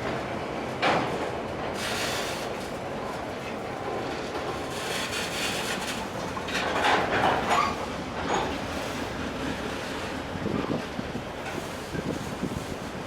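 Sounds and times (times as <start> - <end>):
freight train rolling on rails: 0.0 - 13.0
train wheels squealing: 7.4 - 9.1.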